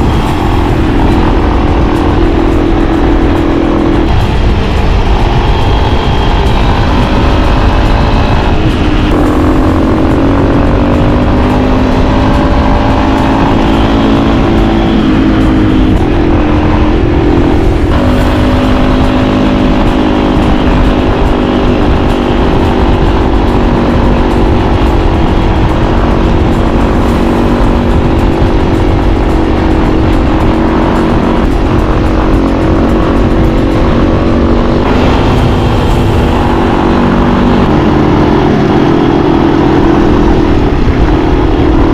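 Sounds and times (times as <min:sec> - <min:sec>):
motorcycle engine running: 0:00.0 - 0:41.9
wind rumbling on microphone: 0:00.0 - 0:41.9.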